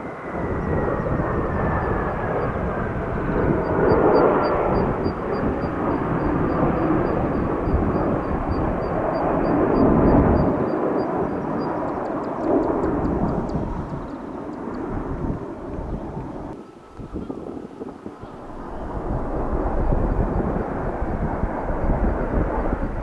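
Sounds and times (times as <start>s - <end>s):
jet engine rush: 0.0s - 23.0s.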